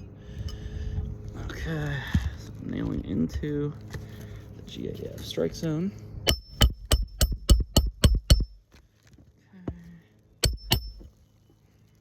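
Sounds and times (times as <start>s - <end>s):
hammer striking roofing nails: 6.3s - 8.6s, 10.4s - 11.1s.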